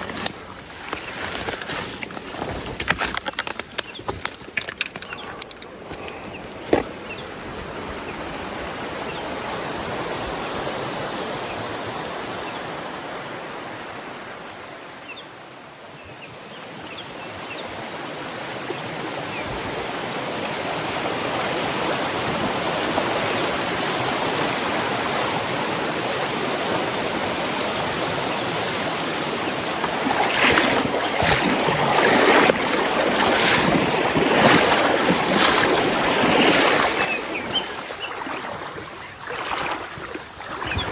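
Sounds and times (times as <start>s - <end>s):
stream water running: 0.0s - 40.9s
water splashes close by: 18.6s - 40.9s.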